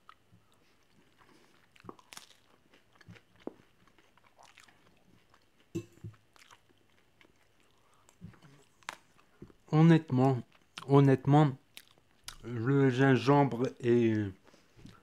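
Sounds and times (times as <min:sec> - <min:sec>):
person chewing food: 0:00.0 - 0:09.7, 0:10.4 - 0:10.9, 0:11.6 - 0:12.5, 0:14.4 - 0:15.0.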